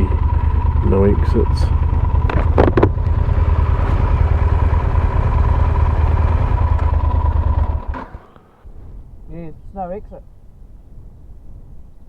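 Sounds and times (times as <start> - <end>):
motorcycle engine idling: 0.0 - 9.2.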